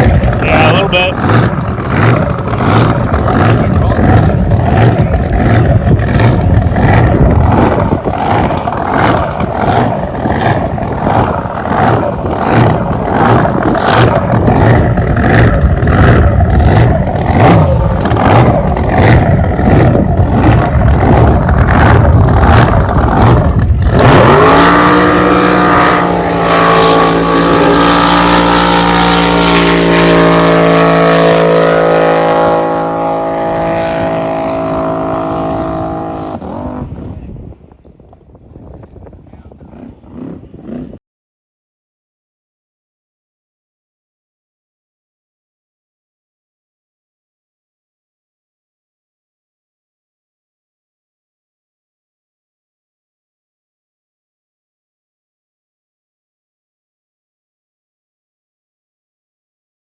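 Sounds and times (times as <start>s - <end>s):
loud loping boat engine: 0.0s - 41.0s.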